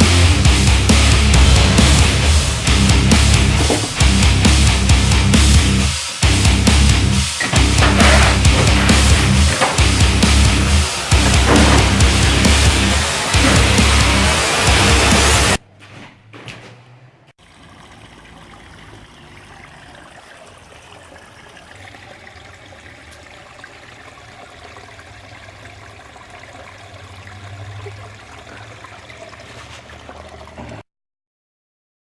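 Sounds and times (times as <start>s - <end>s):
steady rushing noise: 1.1s - 7.0s.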